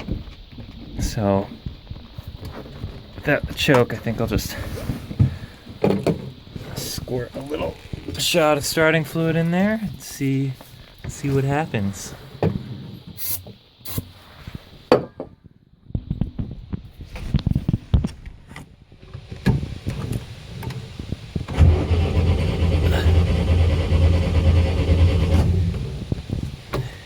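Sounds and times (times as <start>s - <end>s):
short hisses and clicks: 13.2s - 14.7s
starter motor cranking: 21.5s - 26.3s
boat engine running: 21.5s - 26.8s.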